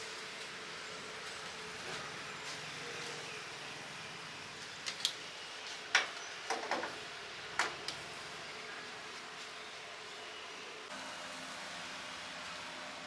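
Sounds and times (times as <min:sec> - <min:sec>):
charcoal grill hissing: 0:00.0 - 0:13.0
utensils clicking on grill racks: 0:04.6 - 0:08.2.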